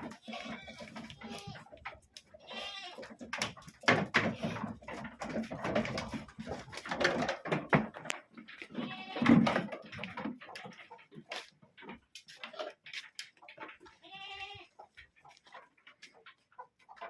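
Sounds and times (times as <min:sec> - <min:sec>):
goats bleating: 0:00.0 - 0:03.2, 0:08.6 - 0:09.5, 0:13.9 - 0:14.8
clicks and rustling: 0:00.0 - 0:17.0.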